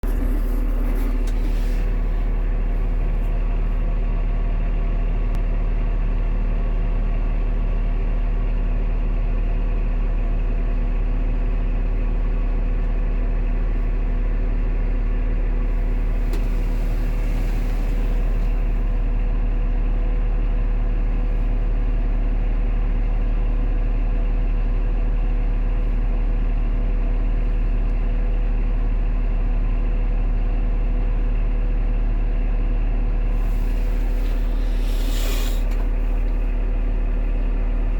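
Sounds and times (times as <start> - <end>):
heavy engine idling: 0.0 - 37.9
brief hiss: 0.1 - 2.2, 16.0 - 18.8, 33.4 - 36.6.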